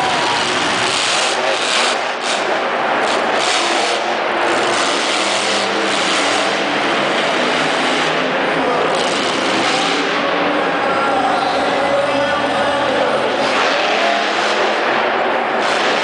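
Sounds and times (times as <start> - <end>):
truck engine at full throttle: 0.0 - 16.0.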